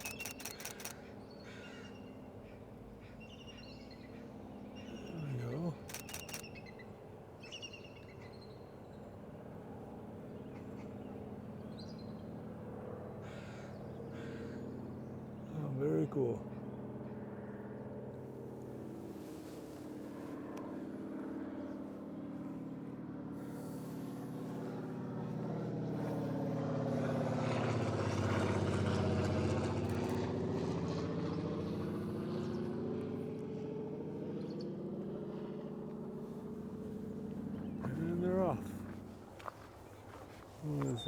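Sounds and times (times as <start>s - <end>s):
passing vehicle engine hum: 23.7s - 39.2s.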